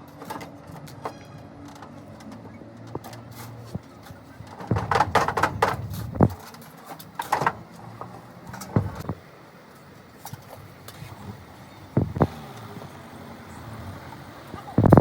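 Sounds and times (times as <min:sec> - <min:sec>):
metal clanking and knocking: 0:04.5 - 0:06.5, 0:08.6 - 0:09.2.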